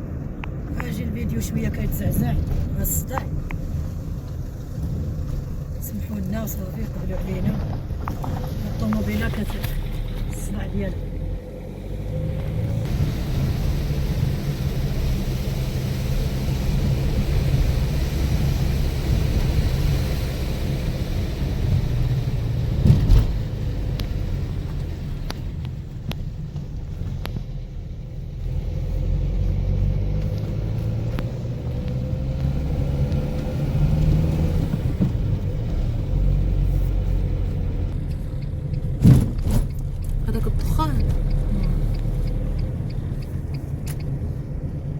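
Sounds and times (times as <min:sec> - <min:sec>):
car engine and road rumble: 0:00.0 - 0:44.9
car jolt: 0:39.0 - 0:40.1.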